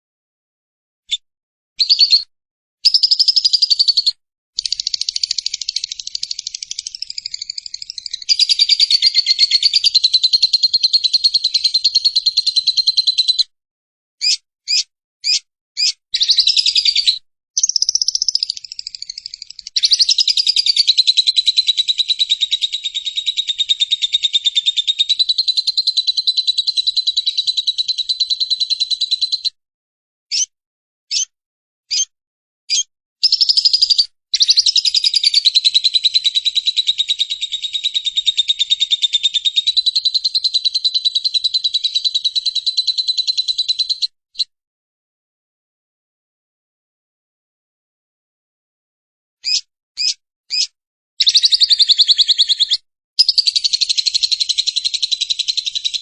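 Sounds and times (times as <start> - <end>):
bird chirps: 1.8 - 13.5, 14.2 - 29.6, 30.3 - 30.5, 31.1 - 31.3, 31.9 - 32.1, 32.7 - 44.5, 49.4 - 56.0
bird chattering trills: 2.9 - 13.4, 14.2 - 29.4, 49.4 - 56.0.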